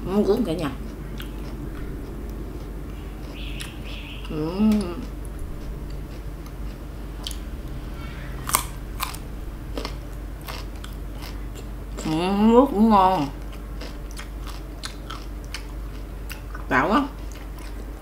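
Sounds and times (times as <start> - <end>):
steady low hum: 0.0 - 18.0
crunchy fruit being chewed: 0.4 - 7.8, 8.4 - 9.2, 13.2 - 16.6, 17.2 - 18.0
person humming: 4.3 - 6.0.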